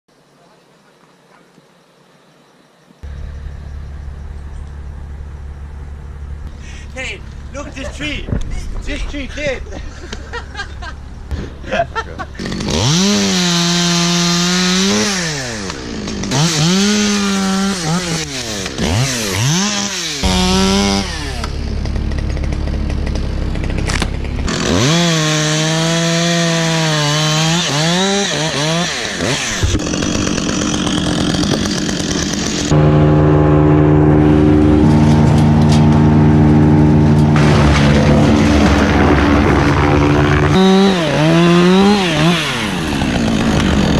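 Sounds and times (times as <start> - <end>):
loud steady engine note: 3.0 - 7.7, 20.2 - 24.6, 32.6 - 43.9
chainsaw revving and cutting wood: 9.9 - 43.9.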